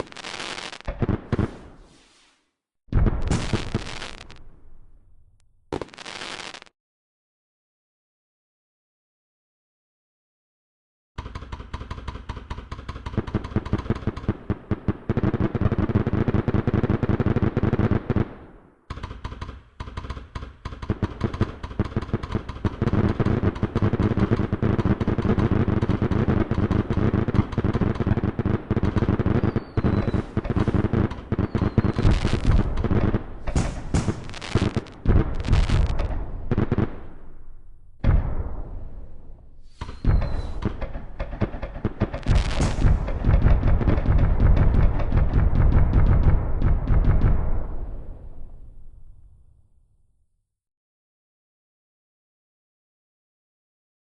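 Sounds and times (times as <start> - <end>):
fireworks cracks and bangs: 0.0 - 2.3, 2.9 - 4.6, 5.7 - 6.7, 11.2 - 48.8.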